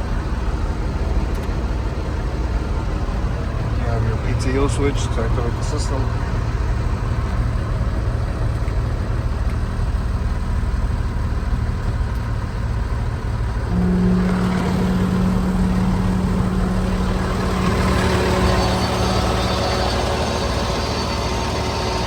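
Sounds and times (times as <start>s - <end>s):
truck engine idling: 0.0s - 22.0s
pump hum: 12.9s - 22.0s.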